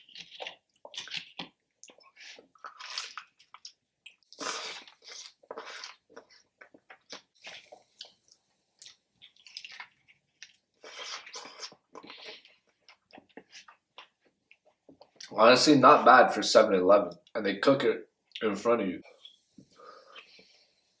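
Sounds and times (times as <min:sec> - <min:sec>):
chewing crispy fried chicken: 0:00.0 - 0:15.3.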